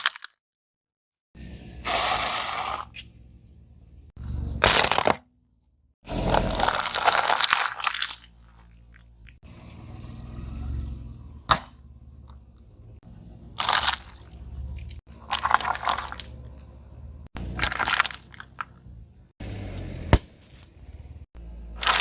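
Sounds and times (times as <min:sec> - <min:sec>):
low rumble: 0:02.9 - 0:04.7
objects crunching under tyre: 0:04.5 - 0:05.3, 0:06.1 - 0:10.8, 0:13.4 - 0:21.2, 0:21.8 - 0:22.0
sharp crack: 0:11.5 - 0:11.9, 0:20.0 - 0:20.7.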